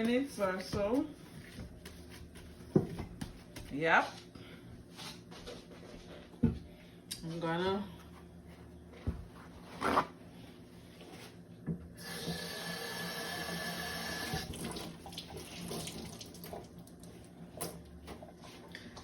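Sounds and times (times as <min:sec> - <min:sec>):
kitchen tap running: 0:12.0 - 0:17.0.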